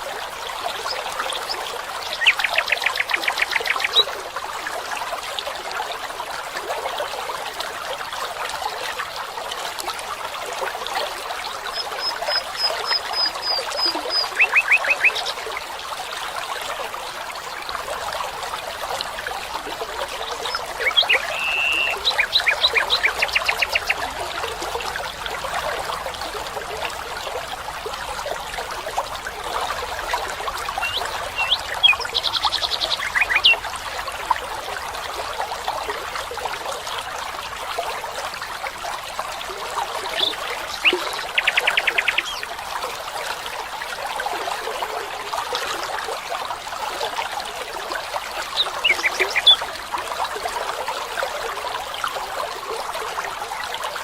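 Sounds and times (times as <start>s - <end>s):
water trickling: 0.0s - 54.0s
rapid trilled animal calls: 20.6s - 24.0s.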